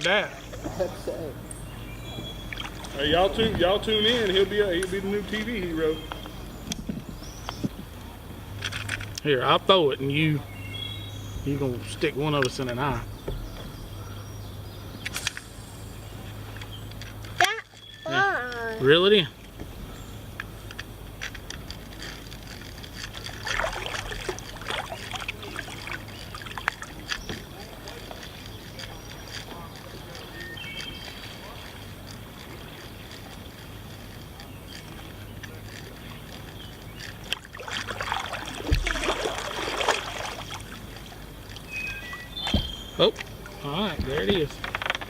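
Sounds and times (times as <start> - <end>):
water splashing and dripping: 2.1 - 5.9, 21.7 - 30.4, 31.0 - 45.0.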